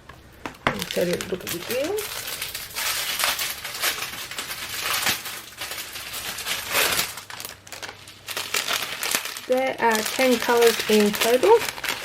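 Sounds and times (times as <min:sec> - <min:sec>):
plastic bags crinkling: 0:00.4 - 0:12.0.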